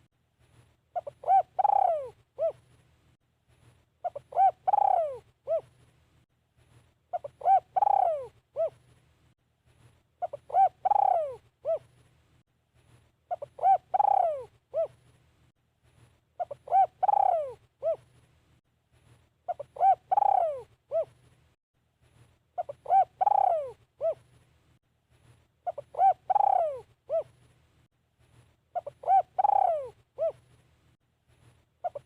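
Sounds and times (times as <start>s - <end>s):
dove cooing: 0.9s - 2.7s, 4.0s - 5.8s, 7.1s - 8.8s, 10.2s - 11.9s, 13.3s - 15.0s, 16.4s - 18.1s, 19.5s - 21.2s, 22.6s - 24.3s, 25.6s - 27.4s, 28.7s - 30.5s.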